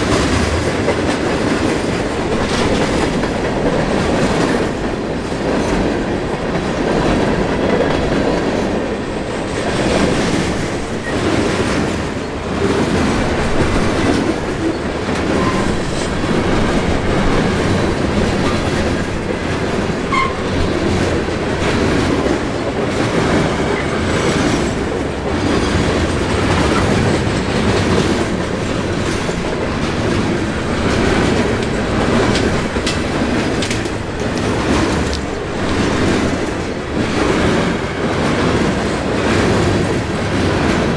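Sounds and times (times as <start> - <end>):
clickety-clack over rail joints: 0.0 - 40.9
freight train wheels rumbling: 0.0 - 40.9
high-pitched wheel squeal: 14.8 - 16.1.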